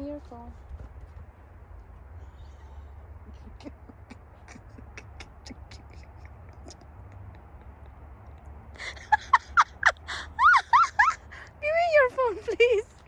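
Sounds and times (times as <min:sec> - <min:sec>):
low steady rumble: 0:00.0 - 0:13.0
high voice making wordless sounds: 0:03.3 - 0:07.4.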